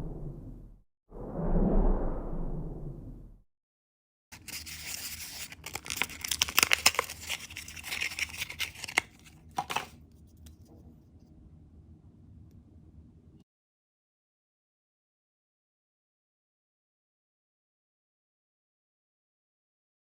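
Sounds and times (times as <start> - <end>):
packaging tearing and crinkling: 4.4 - 10.0
faint room hum: 4.4 - 13.4.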